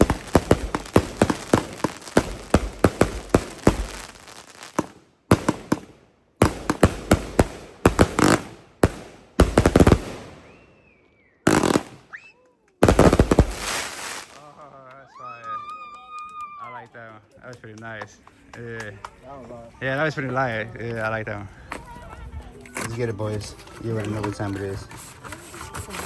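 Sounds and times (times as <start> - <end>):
fireworks bangs: 0.0 - 12.2, 12.8 - 14.9.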